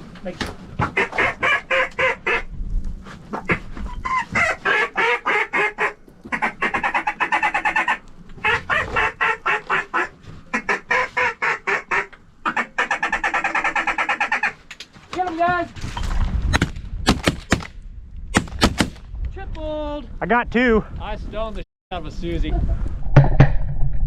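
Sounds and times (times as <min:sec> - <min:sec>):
duck calls quacking: 0:00.8 - 0:02.5, 0:03.4 - 0:14.6.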